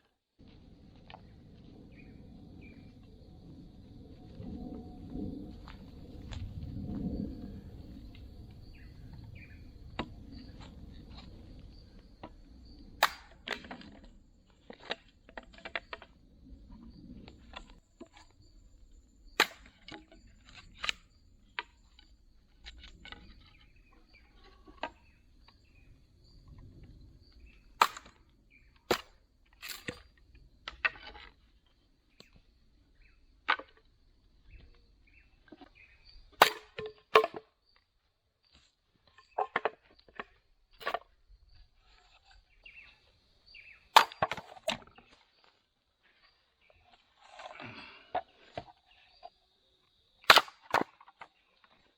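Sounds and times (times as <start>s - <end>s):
dry bamboo cracking and knocking: 13.0s - 16.1s, 19.4s - 25.8s, 27.4s - 32.4s, 35.4s - 37.9s, 38.5s - 41.2s, 43.6s - 48.9s, 50.2s - 51.9s.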